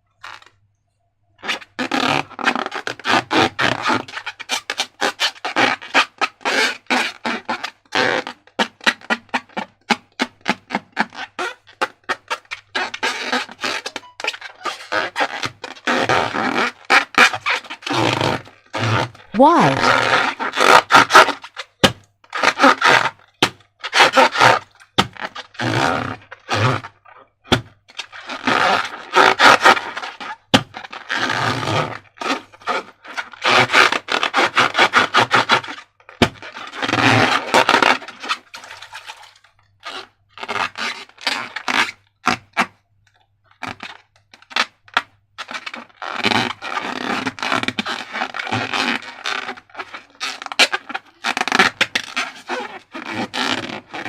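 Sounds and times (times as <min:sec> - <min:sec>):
slime scraping and crackling: 0:45.5 - 0:54.0.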